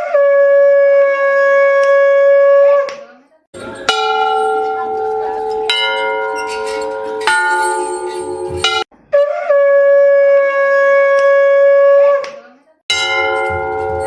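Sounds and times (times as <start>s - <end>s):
temple bell ringing: 3.6s - 8.9s, 12.9s - 14.0s.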